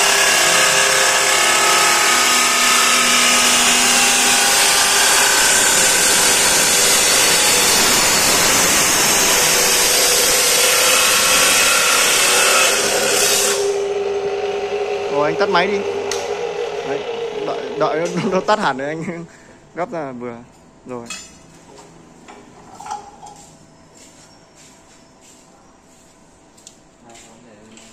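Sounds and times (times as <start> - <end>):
cut-off machine grinding metal: 0.0 - 18.7
steady motor tone: 0.0 - 19.1.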